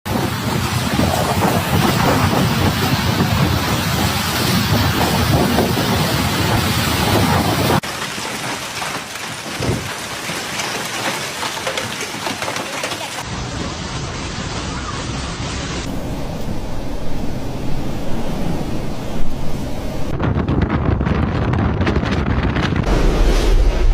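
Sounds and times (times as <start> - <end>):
wind: 0.0 - 23.9
heavy rain: 0.1 - 16.2.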